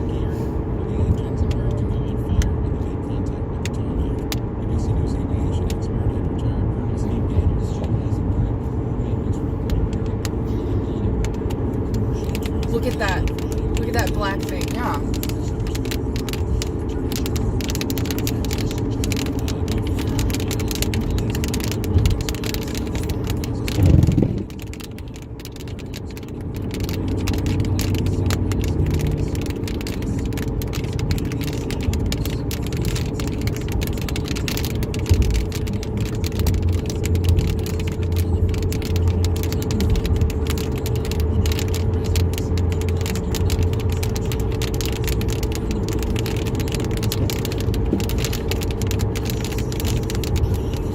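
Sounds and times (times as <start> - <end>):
car cabin engine and tyre drone: 0.0 - 50.9
fine rattling ticks: 12.2 - 50.9.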